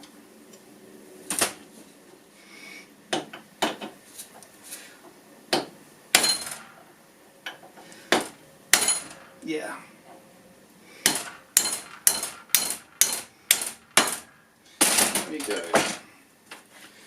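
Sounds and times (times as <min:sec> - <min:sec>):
hammer striking metal: 0:05.6 - 0:06.9, 0:08.2 - 0:09.4, 0:11.0 - 0:16.0.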